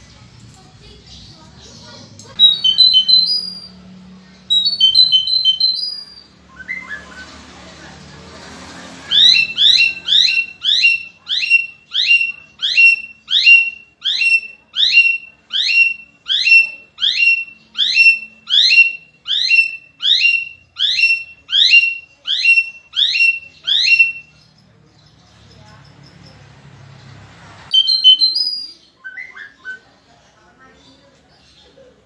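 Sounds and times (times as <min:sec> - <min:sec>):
bird calling: 0:02.3 - 0:03.8, 0:04.5 - 0:07.4, 0:09.0 - 0:24.5, 0:27.7 - 0:30.0.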